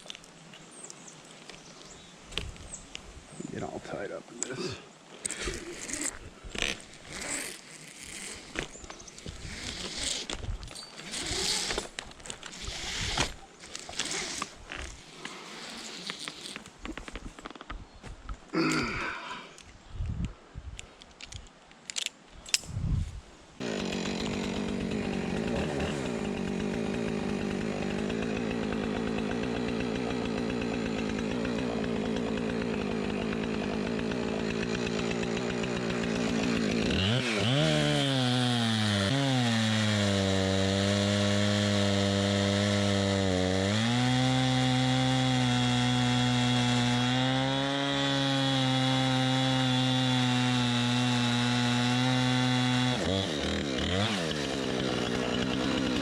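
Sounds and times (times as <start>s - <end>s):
chainsaw cutting tree: 5.3s - 16.6s, 23.6s - 56.0s.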